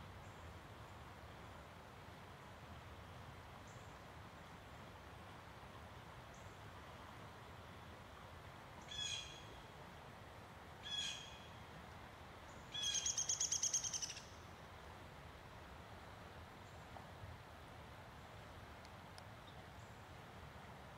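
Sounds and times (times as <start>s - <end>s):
faint steady hiss: 0.0s - 20.9s
bird calling: 8.8s - 9.5s, 10.8s - 11.5s, 12.7s - 14.4s.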